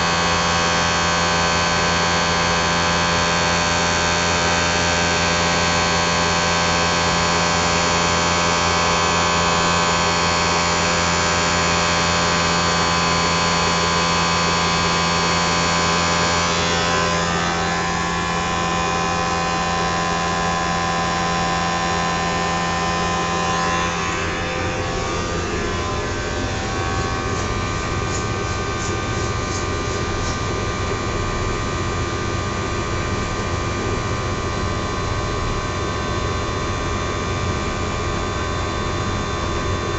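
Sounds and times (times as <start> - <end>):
blower motor humming and whining: 0.0 - 39.9.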